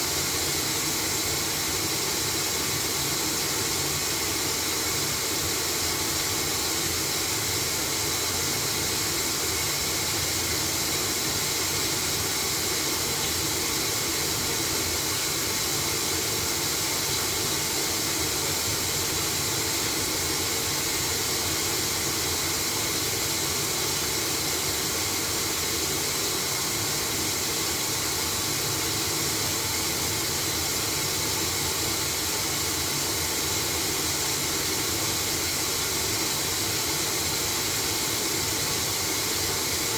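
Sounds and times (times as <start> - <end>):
washing machine whirring: 0.0 - 39.9.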